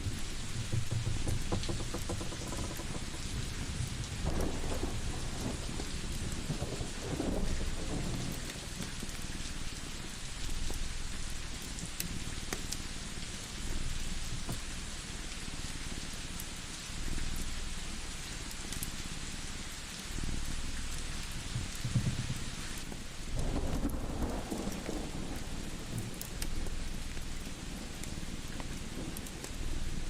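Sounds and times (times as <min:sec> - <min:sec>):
distant thunder rumbling: 0:00.0 - 0:08.5, 0:23.4 - 0:26.8
steady rain: 0:00.0 - 0:30.0
wood fire crackling: 0:00.0 - 0:30.0.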